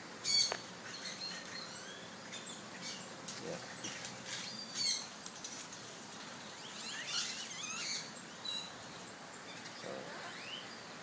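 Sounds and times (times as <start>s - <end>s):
parrot chirping: 6.6s - 8.8s.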